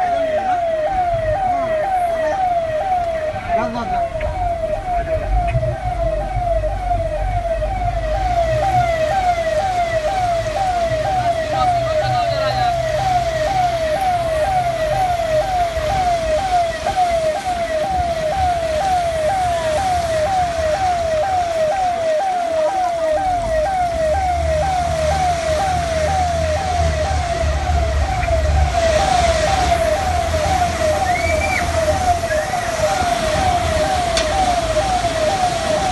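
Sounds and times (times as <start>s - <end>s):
low vehicle engine rumble: 0.0s - 22.0s
emergency siren yelping: 0.0s - 35.9s.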